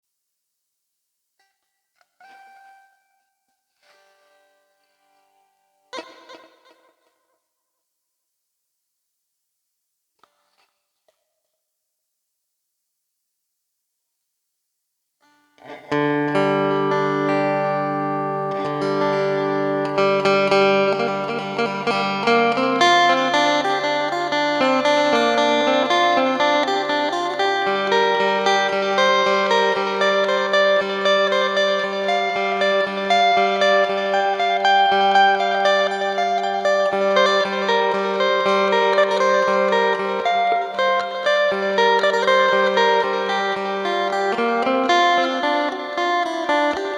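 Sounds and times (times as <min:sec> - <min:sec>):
amplified plucked lute melody: 0:15.6 - 0:46.9.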